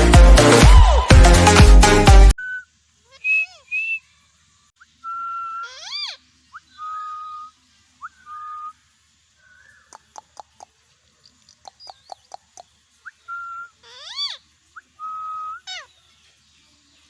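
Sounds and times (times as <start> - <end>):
parrot whistled calls: 2.4 - 4.1, 4.8 - 8.8, 13.0 - 16.0.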